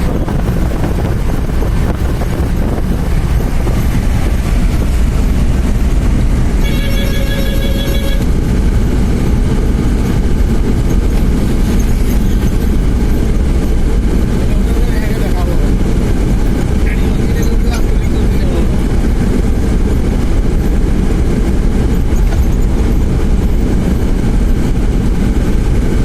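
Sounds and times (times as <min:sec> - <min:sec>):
vehicle rumbling: 0:00.0 - 0:26.0
horn tone: 0:06.5 - 0:08.4.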